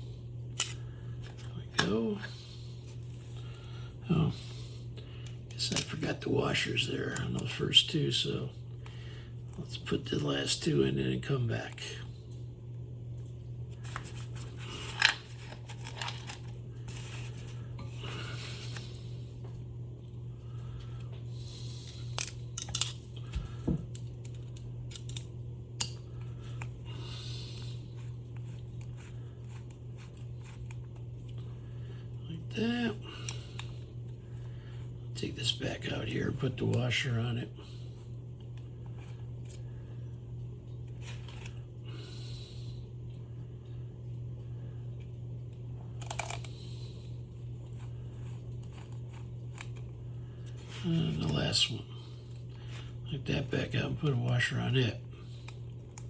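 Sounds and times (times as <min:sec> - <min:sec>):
steady low hum: 0:00.0 - 0:56.0
small metal parts clinking: 0:22.2 - 0:23.0, 0:23.9 - 0:25.2.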